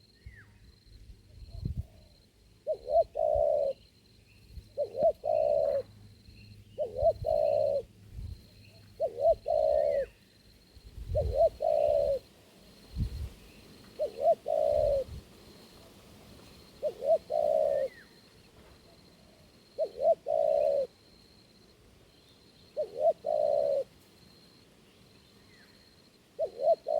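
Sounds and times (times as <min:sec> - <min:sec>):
small birds chirping: 0:01.4 - 0:12.2
dove cooing: 0:01.5 - 0:03.8, 0:04.6 - 0:06.0, 0:06.8 - 0:08.0, 0:08.8 - 0:10.2, 0:11.0 - 0:12.3, 0:13.8 - 0:18.2, 0:18.8 - 0:21.2, 0:22.7 - 0:24.0, 0:26.3 - 0:26.9.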